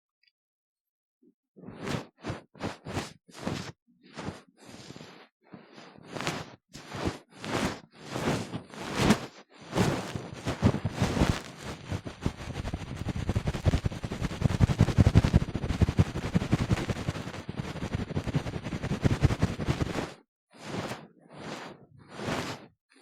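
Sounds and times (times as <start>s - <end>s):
ear-cleaning tool swishing: 1.7s - 11.7s, 19.1s - 22.7s
crackly scratching in ear model: 9.8s - 20.2s.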